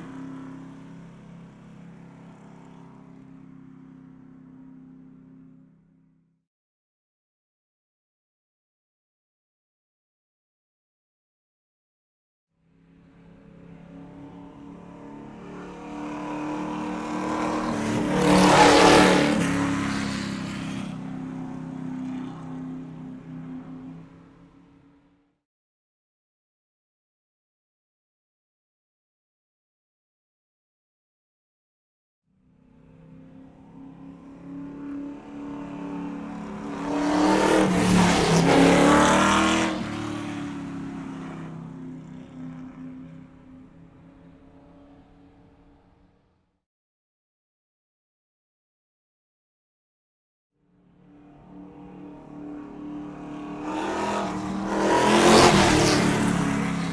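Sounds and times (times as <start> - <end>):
car driving past: 13.1 - 25.0, 32.7 - 44.2, 51.0 - 56.9.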